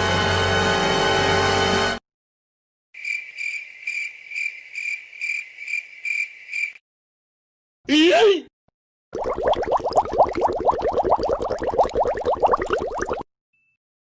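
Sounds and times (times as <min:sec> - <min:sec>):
cricket chirping: 0:03.0 - 0:06.8.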